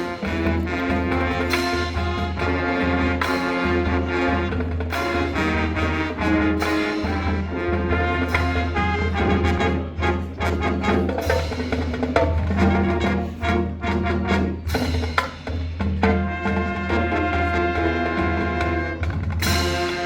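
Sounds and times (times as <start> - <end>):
marching band playing: 0.0 - 20.0.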